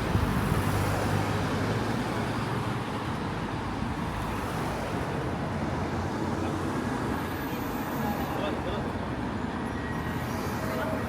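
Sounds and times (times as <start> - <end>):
outdoor rushing noise: 0.0 - 6.2.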